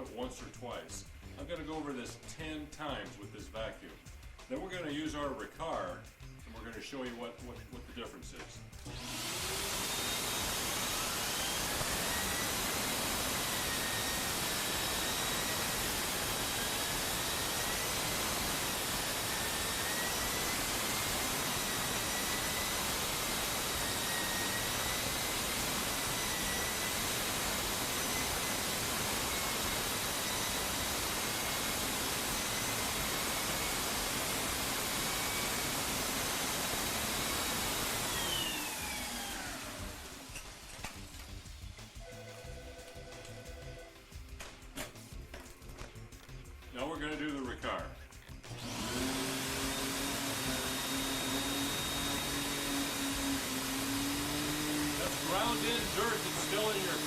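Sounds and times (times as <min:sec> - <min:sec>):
vacuum cleaner running over carpet: 0:08.8 - 0:41.6, 0:48.4 - 0:57.0.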